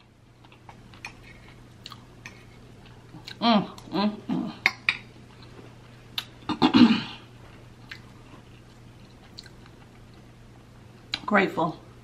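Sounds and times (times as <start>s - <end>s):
chewing with wet mouth clicks: 1.8s - 2.4s, 7.8s - 10.2s.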